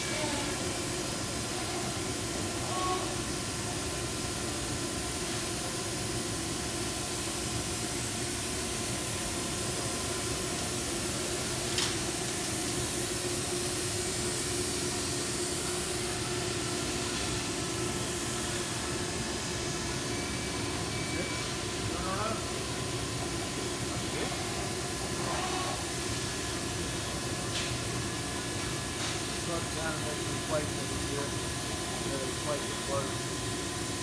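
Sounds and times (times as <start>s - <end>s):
shop machinery running: 0.0s - 34.0s.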